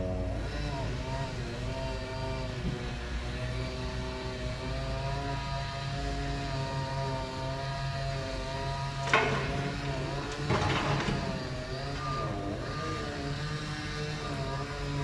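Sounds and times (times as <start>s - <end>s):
construction machinery engine running: 0.0s - 15.0s
short noisy clatter: 9.0s - 12.3s.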